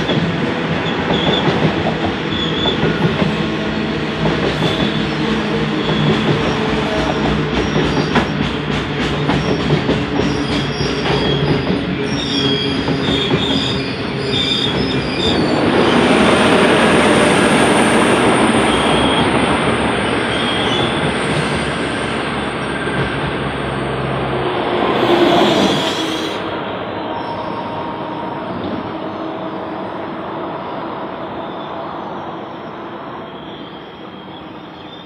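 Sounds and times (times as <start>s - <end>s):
train rolling rush: 0.0s - 35.0s
high wheel squeal: 9.3s - 16.4s, 24.9s - 29.7s, 30.5s - 35.0s.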